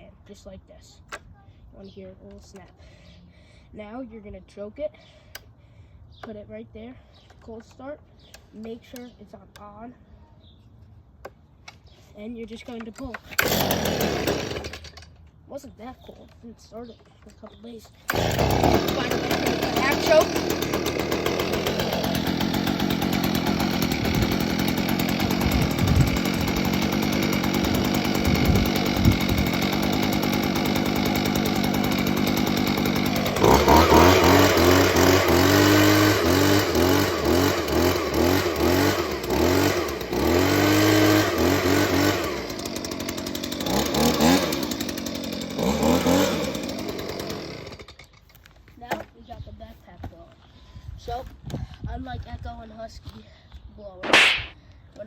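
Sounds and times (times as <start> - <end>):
leaf blower engine revving: 13.3 - 15.0, 18.0 - 48.1, 54.0 - 54.6.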